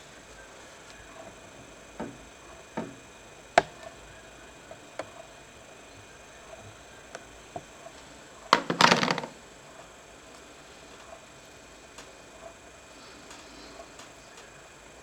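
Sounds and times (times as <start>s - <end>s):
clatter of small hard parts: 8.5s - 9.4s.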